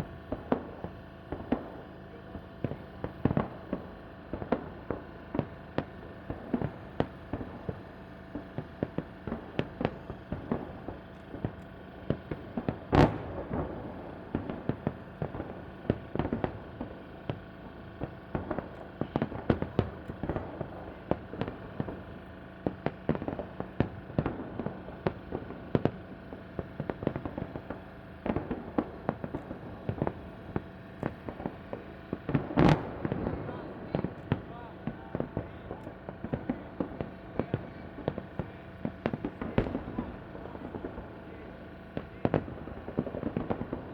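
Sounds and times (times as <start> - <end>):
fireworks bangs: 0.0 - 43.9.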